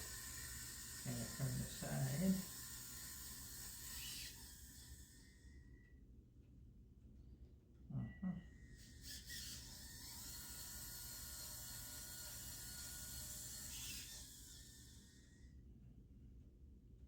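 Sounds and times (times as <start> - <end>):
model engine mechanism whirring: 0.0 - 5.4, 8.8 - 15.4.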